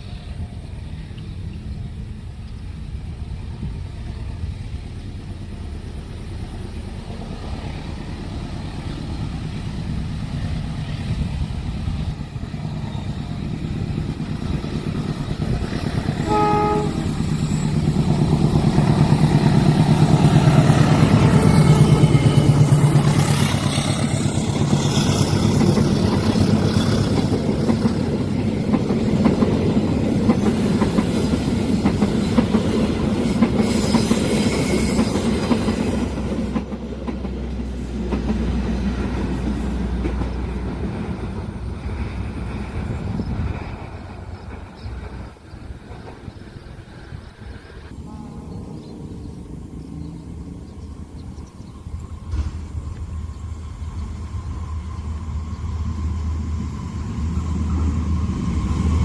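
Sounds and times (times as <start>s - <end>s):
train rumble passing: 0.0s - 59.0s
wheels clacking over rail joints: 11.6s - 47.2s
locomotive horn blast: 16.1s - 17.6s, 47.9s - 50.4s.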